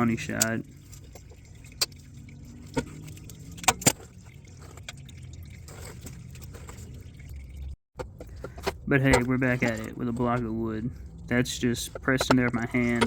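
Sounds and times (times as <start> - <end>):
low steady hum: 0.0 - 13.0
sharp clicks and knocks: 12.0 - 13.0.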